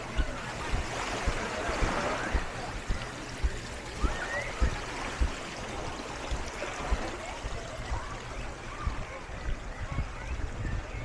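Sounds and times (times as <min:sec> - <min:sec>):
water rushing on shore: 0:00.0 - 0:11.0.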